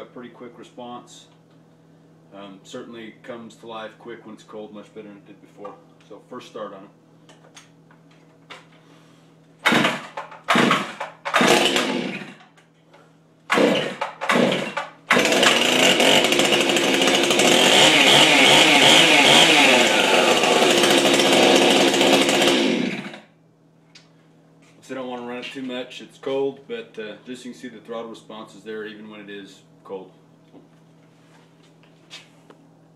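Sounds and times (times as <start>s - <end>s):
chainsaw pull-starting and running: 9.6s - 12.6s, 13.5s - 23.3s.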